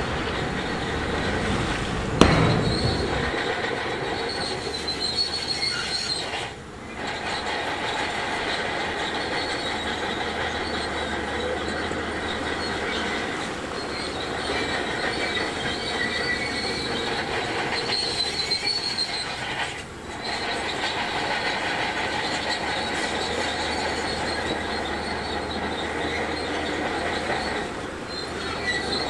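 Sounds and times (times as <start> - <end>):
metallic squeal of steel tracks: 0.0 - 29.0.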